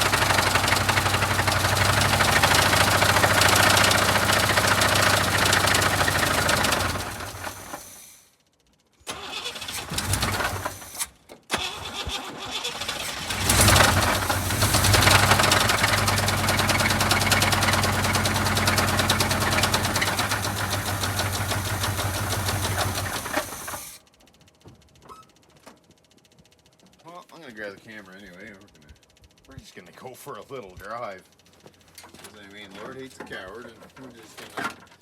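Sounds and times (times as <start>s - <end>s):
engine running with fast knocking: 0.0s - 7.9s, 9.4s - 11.0s, 11.6s - 25.3s
car engine cranking: 0.0s - 8.2s, 9.0s - 24.0s.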